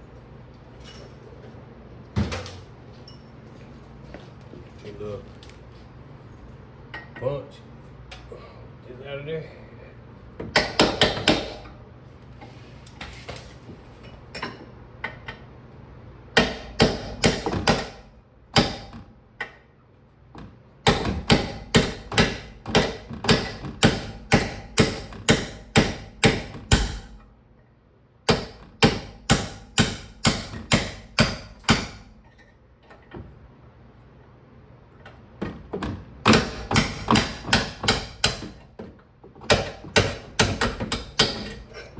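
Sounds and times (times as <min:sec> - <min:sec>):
hammer striking steel punch: 0:10.5 - 0:11.7, 0:16.4 - 0:18.0, 0:18.6 - 0:19.0, 0:20.8 - 0:27.2, 0:28.3 - 0:32.1, 0:36.3 - 0:38.6, 0:39.5 - 0:41.6.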